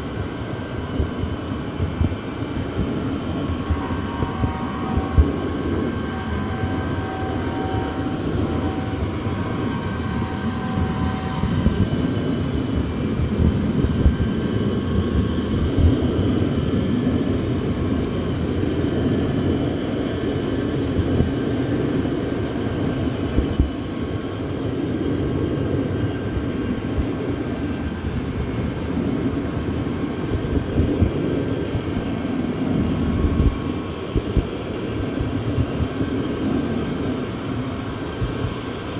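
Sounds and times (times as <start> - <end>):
train rumbling on track: 0.0 - 38.9
faint high tones: 2.6 - 13.5.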